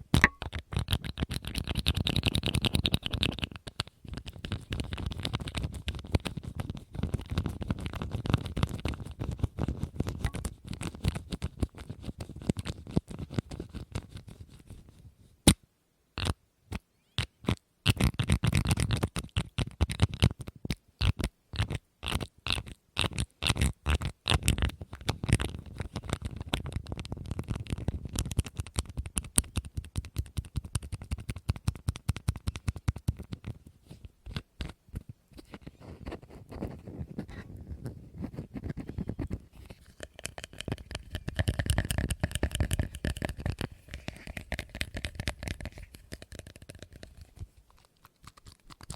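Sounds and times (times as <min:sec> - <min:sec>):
rapid tapping and scratching: 0:00.0 - 0:14.8, 0:17.4 - 0:48.9.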